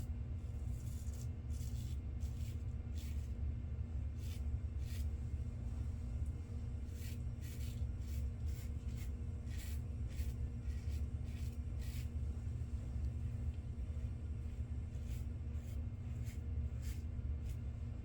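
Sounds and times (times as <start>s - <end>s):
steady low hum: 0.0s - 18.0s
razor scraping stubble: 6.9s - 12.2s, 15.0s - 17.6s.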